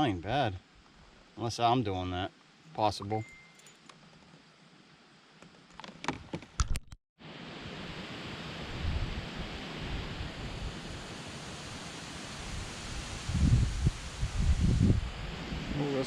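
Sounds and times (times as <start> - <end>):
wind noise on microphone: 8.6 - 16.0.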